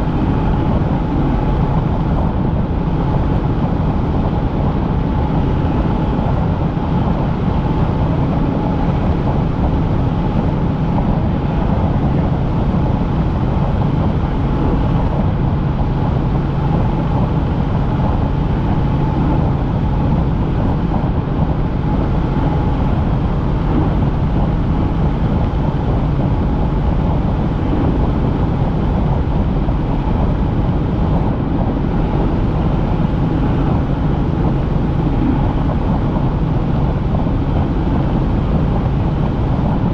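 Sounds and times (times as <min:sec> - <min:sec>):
helicopter engine and rotor noise: 0:00.0 - 0:39.9.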